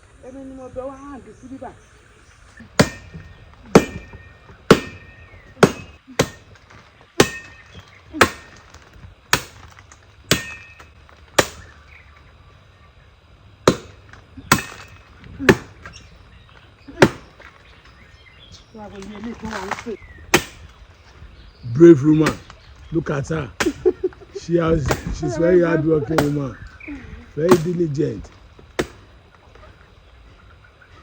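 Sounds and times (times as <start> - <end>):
steel blade chopping wood: 2.8 - 11.8, 13.6 - 16.0, 17.0 - 17.4, 19.4 - 20.7, 22.2 - 22.5, 26.1 - 26.4, 27.4 - 27.9, 28.8 - 29.1.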